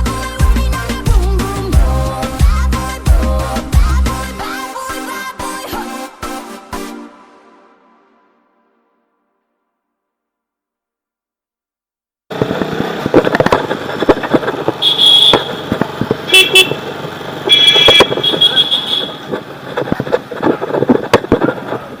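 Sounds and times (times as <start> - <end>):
motorcycle riding: 12.3 - 22.0
vehicle horns honking: 14.7 - 19.3.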